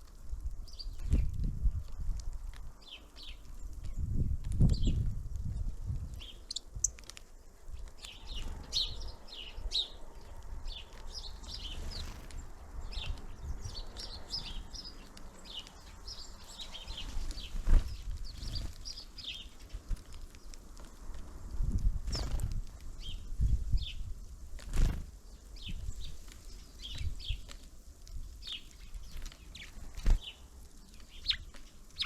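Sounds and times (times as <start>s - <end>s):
songbirds chirping: 0.0s - 1.4s, 2.2s - 32.0s.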